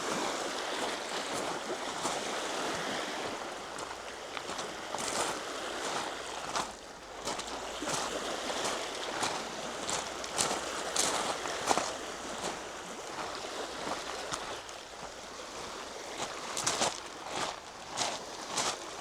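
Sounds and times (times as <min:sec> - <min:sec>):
lake waves: 0:00.0 - 0:19.0
wind: 0:00.0 - 0:19.0
footsteps crunching on trail: 0:03.8 - 0:19.0.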